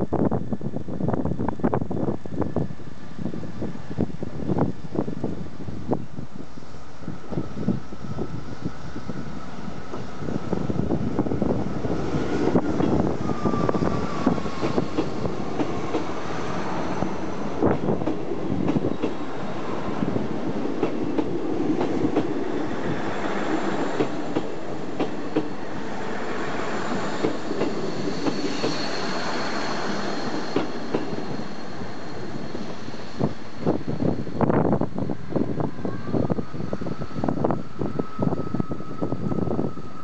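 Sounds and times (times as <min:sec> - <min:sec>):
train running noise: 0:00.0 - 0:40.0
wheel squeal: 0:12.2 - 0:15.3, 0:26.8 - 0:34.4
train wheels clicking over rail joints: 0:13.7 - 0:16.5, 0:17.4 - 0:19.3, 0:20.5 - 0:22.4, 0:23.2 - 0:25.6, 0:26.9 - 0:31.6.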